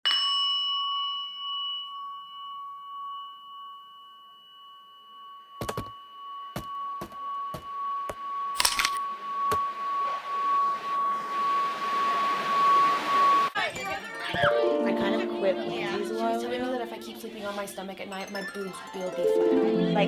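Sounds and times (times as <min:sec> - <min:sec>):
bell-like ding: 0:00.0 - 0:07.0, 0:14.3 - 0:19.4
steady high tone: 0:06.0 - 0:20.0.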